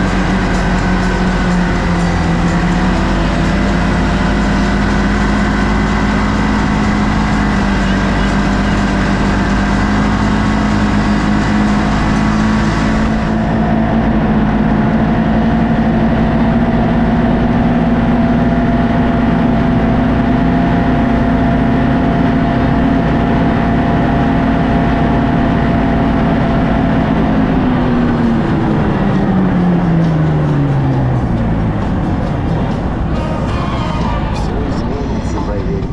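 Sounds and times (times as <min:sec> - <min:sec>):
vehicle engine running: 0:00.0 - 0:35.9.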